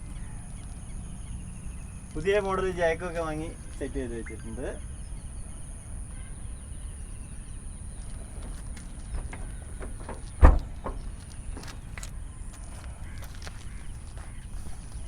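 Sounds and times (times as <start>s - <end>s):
low steady rumble: 0.0s - 15.0s
car boot lid shutting: 9.1s - 11.2s.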